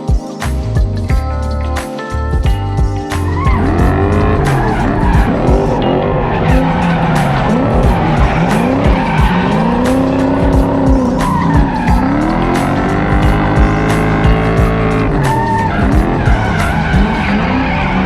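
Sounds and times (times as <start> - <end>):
music with steady beat: 0.0 - 18.0
car engine revving: 3.2 - 18.0
tyres skidding: 3.2 - 18.0.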